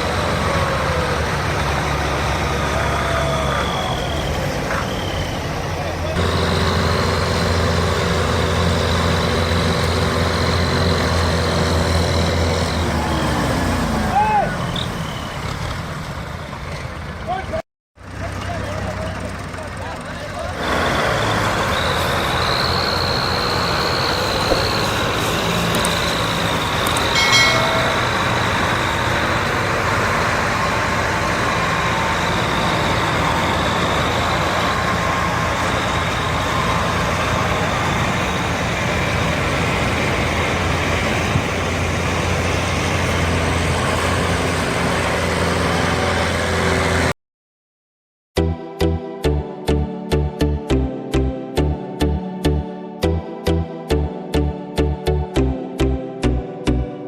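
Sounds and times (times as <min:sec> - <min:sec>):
tractor diesel engine under load: 0:00.0 - 0:47.2, 0:48.4 - 0:56.9
high whine: 0:22.3 - 0:29.4.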